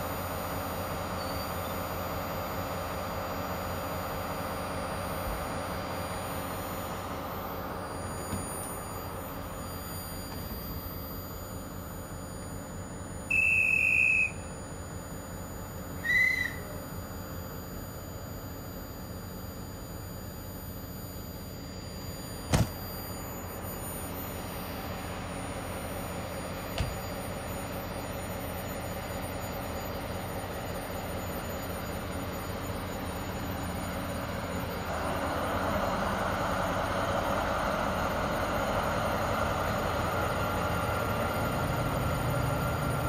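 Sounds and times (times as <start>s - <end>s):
high train whistle blasts: 13.3s - 14.5s, 16.0s - 16.8s
sharp knock: 22.5s - 22.8s.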